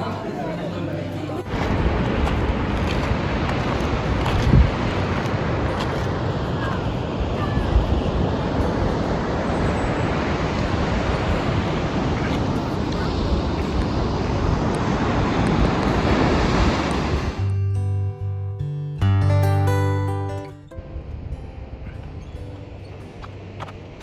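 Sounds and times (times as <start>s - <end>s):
ocean surf: 0.0s - 17.5s
wind on microphone: 1.5s - 17.5s.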